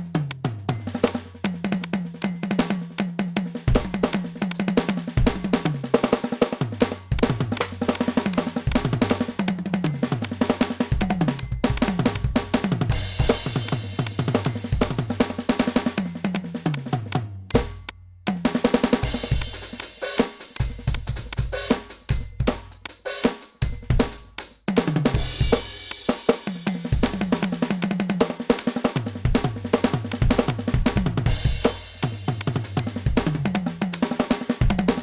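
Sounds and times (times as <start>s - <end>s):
electronic drum kit playing: 3.6s - 35.0s.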